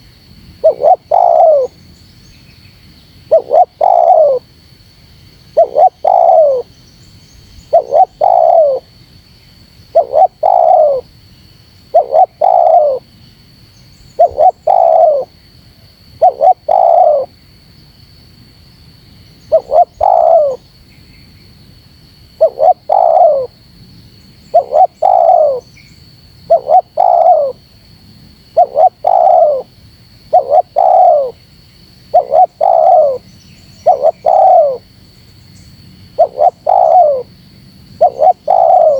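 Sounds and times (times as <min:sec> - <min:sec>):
dove cooing: 0:00.6 - 0:01.8, 0:03.3 - 0:04.5, 0:05.5 - 0:06.7, 0:07.6 - 0:08.9, 0:09.9 - 0:11.1, 0:11.9 - 0:13.1, 0:14.2 - 0:15.3, 0:16.2 - 0:17.3, 0:19.5 - 0:20.6, 0:22.4 - 0:23.6, 0:24.5 - 0:25.7, 0:26.5 - 0:27.6, 0:28.5 - 0:29.7, 0:30.3 - 0:31.4, 0:32.1 - 0:34.9, 0:36.2 - 0:37.4, 0:38.0 - 0:38.9.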